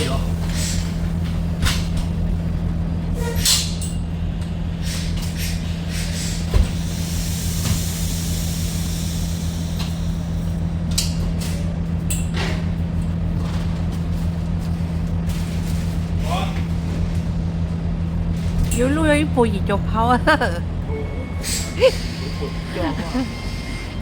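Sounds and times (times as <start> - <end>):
truck engine droning: 0.0 - 24.0
hiss: 4.8 - 10.5.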